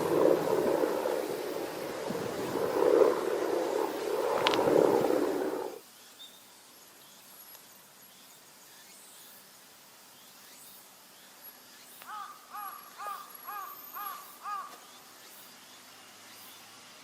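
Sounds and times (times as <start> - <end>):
faint outdoor hiss: 0.0 - 17.0
crow cawing: 12.1 - 14.8.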